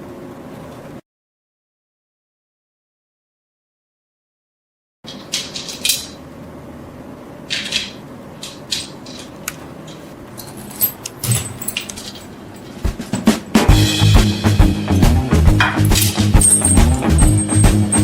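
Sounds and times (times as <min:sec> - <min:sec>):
metal parts scraping: 0:05.1 - 0:06.3, 0:07.5 - 0:13.5, 0:15.6 - 0:18.0.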